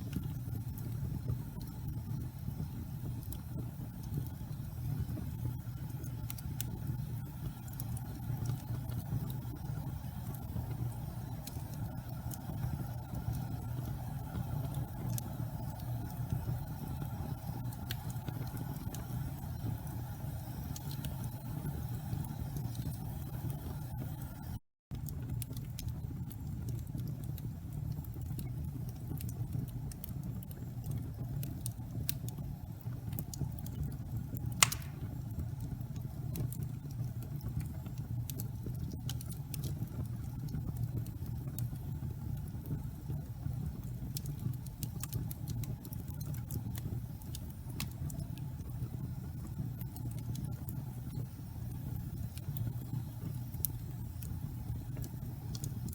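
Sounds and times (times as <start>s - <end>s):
fire crackles: 0.0s - 55.9s
fire flames rumbling: 0.0s - 55.9s
sharp pop of fire: 34.6s - 35.3s.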